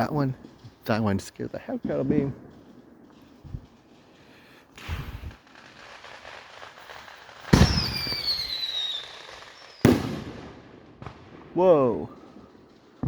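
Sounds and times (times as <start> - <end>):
firework bangs: 0.0 - 13.0
firework whistle: 6.9 - 10.2.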